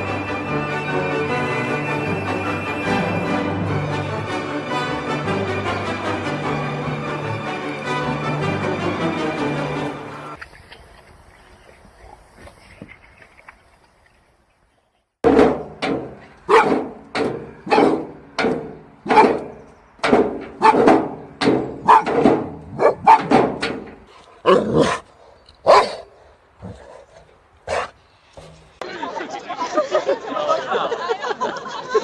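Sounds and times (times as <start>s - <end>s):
dog barking: 16.5s - 16.8s, 17.7s - 18.0s, 19.1s - 19.4s, 20.6s - 20.9s, 21.8s - 22.2s, 22.8s - 23.3s, 25.6s - 26.1s, 27.7s - 27.9s.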